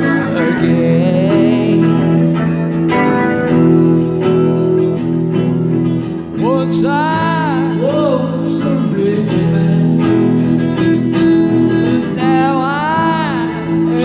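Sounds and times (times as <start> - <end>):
person singing: 0.0 - 3.9, 6.2 - 14.0
blues band playing: 0.0 - 6.3
guitar strumming chords: 0.0 - 14.0.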